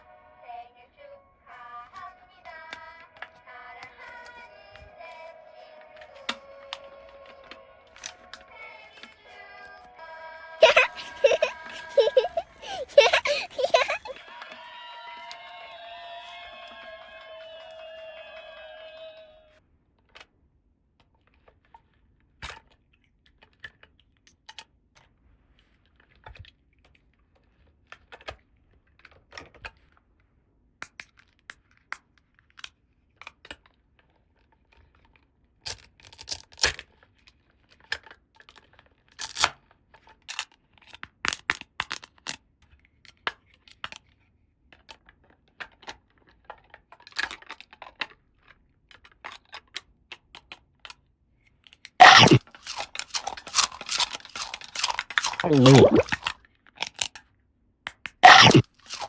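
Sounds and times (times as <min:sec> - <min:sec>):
plastic toy pieces clicking: 0:52.0 - 0:56.3
packaging rustling: 0:52.1 - 0:56.3.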